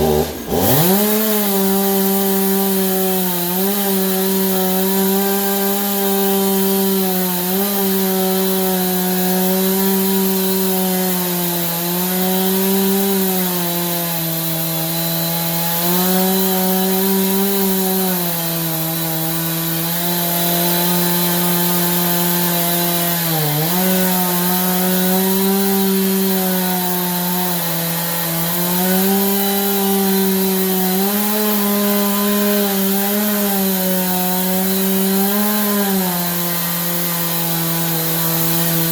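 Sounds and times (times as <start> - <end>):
chainsaw cutting log at high revs: 0.0 - 38.9.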